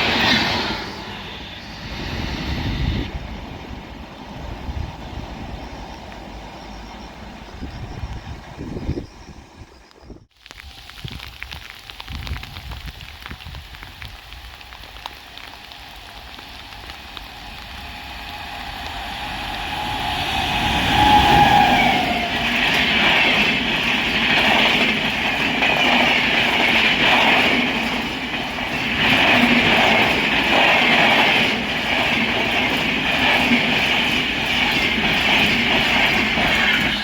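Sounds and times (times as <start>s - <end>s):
train passing at speed: 0.0s - 10.2s, 15.2s - 37.0s
steady rain: 10.3s - 36.8s
train wheels clattering over rail joints: 17.4s - 37.0s.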